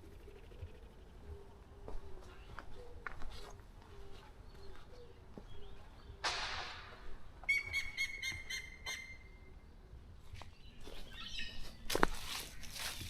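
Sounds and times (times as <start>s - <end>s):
bird hooting: 0.0s - 6.3s, 7.5s - 9.6s.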